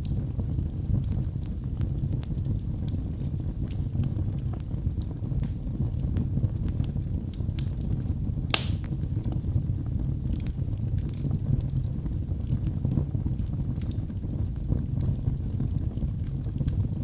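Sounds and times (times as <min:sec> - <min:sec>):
burning wood crackling and snapping: 0:00.0 - 0:17.0
rumble of fire flames: 0:00.0 - 0:17.0
loud wood pop: 0:08.5 - 0:08.9.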